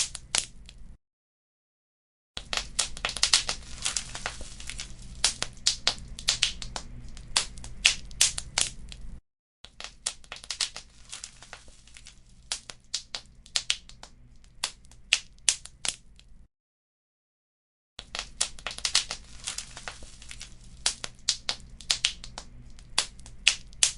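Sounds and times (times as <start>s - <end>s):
wood fire crackling and popping: 0.0s - 0.8s, 2.4s - 16.3s, 18.0s - 23.9s
low steady rumble: 2.7s - 9.2s, 18.3s - 23.8s.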